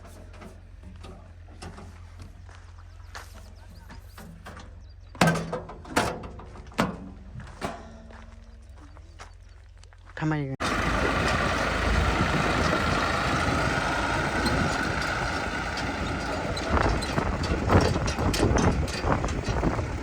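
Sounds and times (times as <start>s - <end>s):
diesel engine running: 10.6s - 20.0s
sharp knocks and clanks: 13.7s - 20.0s.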